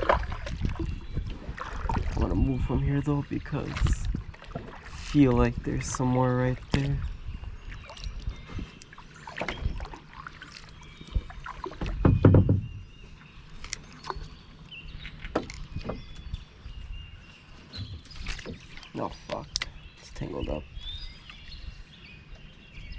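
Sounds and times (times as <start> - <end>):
paddle splashing in water: 0.0 - 16.4, 17.6 - 19.5
low thump: 11.8 - 12.9.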